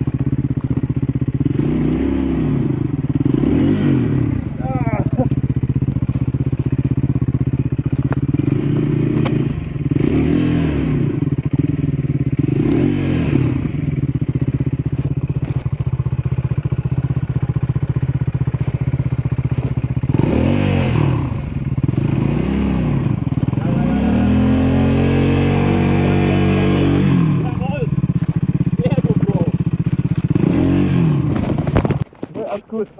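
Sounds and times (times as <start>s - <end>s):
motorcycle engine revving: 0.0s - 32.8s
clicks and knocks from motorcycle: 0.1s - 1.1s, 5.2s - 6.8s, 7.7s - 9.5s, 14.8s - 16.0s, 18.4s - 20.0s, 28.2s - 28.6s, 29.2s - 30.4s, 31.3s - 32.6s.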